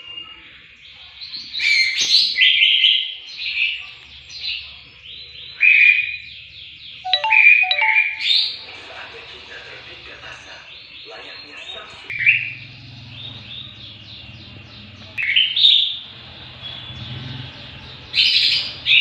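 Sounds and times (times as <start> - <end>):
bird chirping and trilling: 4.4 - 8.6, 12.1 - 16.0.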